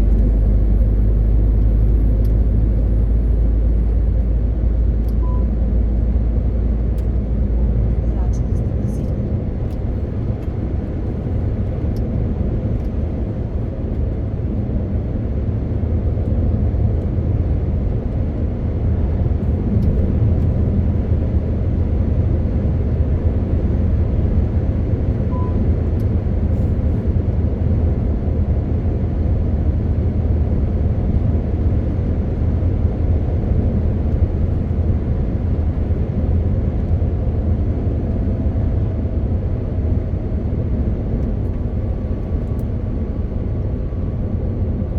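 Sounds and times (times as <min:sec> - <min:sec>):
truck diesel engine running: 0:00.0 - 0:14.1
short beep: 0:05.2 - 0:05.6, 0:25.3 - 0:25.6.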